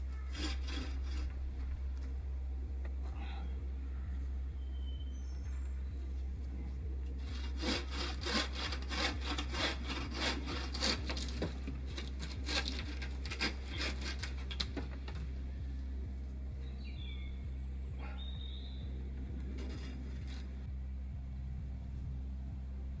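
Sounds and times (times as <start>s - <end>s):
hand saw cutting wood: 0.1s - 1.4s, 7.2s - 14.9s, 19.5s - 20.6s.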